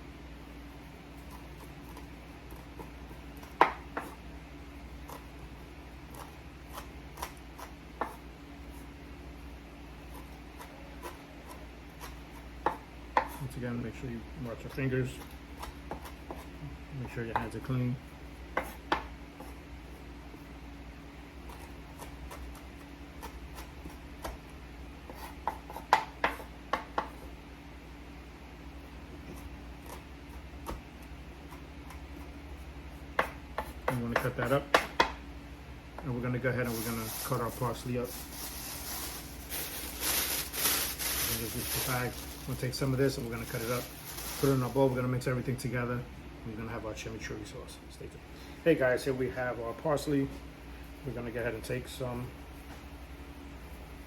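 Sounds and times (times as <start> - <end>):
steady low hum: 0.0 - 54.0
knife chopping on cutting board: 1.3 - 4.2, 6.1 - 8.2, 12.0 - 13.4, 18.5 - 19.5, 25.1 - 27.2, 33.1 - 35.2.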